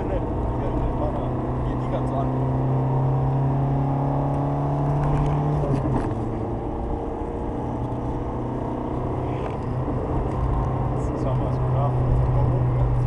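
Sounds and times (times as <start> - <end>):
diesel engine drone in cabin: 0.0 - 13.0
road noise: 0.0 - 13.0.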